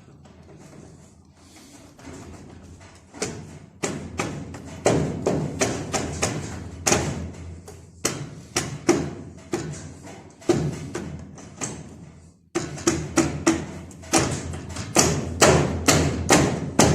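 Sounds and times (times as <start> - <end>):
hammer striking metal: 12.6 - 16.9.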